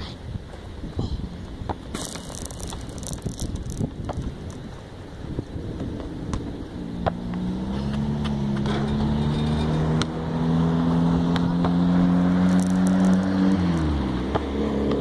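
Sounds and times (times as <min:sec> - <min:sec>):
vehicle engine humming: 0:00.4 - 0:15.0
basketball bouncing on asphalt: 0:01.5 - 0:04.9, 0:05.6 - 0:08.7, 0:11.3 - 0:15.0.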